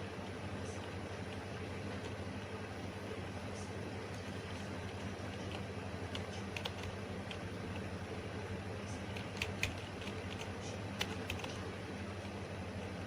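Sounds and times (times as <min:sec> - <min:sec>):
steady low hum: 0:00.0 - 0:13.0
computer keyboard keystrokes: 0:04.2 - 0:07.9, 0:09.0 - 0:12.4.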